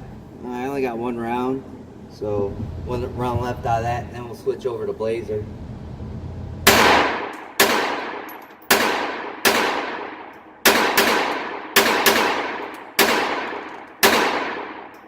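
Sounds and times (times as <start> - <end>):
pistol shots echoing: 6.7 - 15.0.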